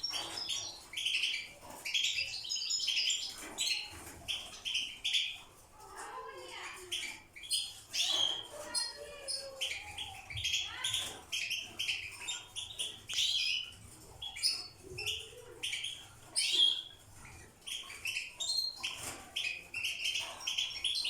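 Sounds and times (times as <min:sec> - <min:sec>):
finches twittering: 0:07.0 - 0:21.0.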